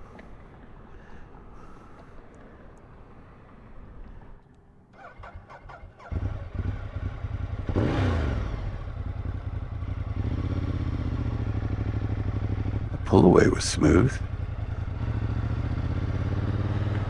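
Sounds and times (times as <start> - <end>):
motorcycle engine accelerating: 5.0 - 13.2, 14.2 - 17.0.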